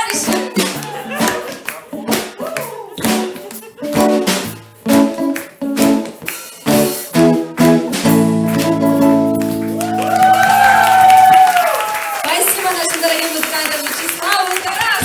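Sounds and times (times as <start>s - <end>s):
guitar chord ringing: 3.9s - 10.6s.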